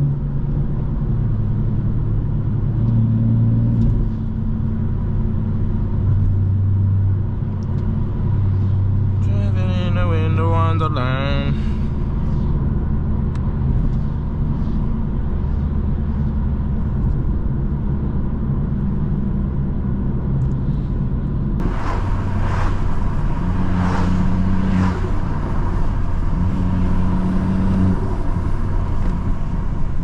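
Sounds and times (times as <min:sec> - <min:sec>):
car engine and exhaust: 0:00.0 - 0:30.0
driver talking: 0:09.2 - 0:11.8.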